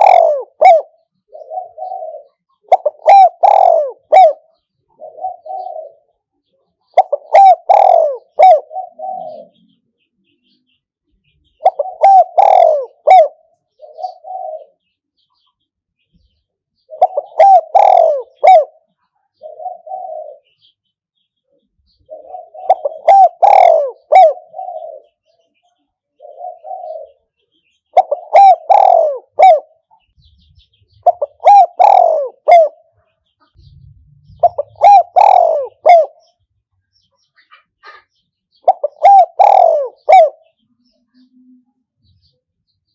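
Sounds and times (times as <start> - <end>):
dove cooing: 0.0 - 9.8, 11.4 - 14.9, 16.8 - 20.7, 21.9 - 25.4, 26.2 - 36.4, 37.4 - 40.6.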